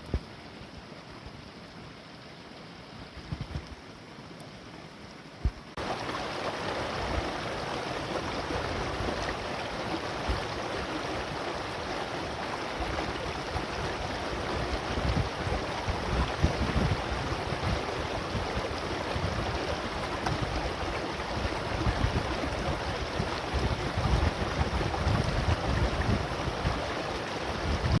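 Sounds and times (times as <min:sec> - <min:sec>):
steady rushing noise: 0:05.4 - 0:28.0.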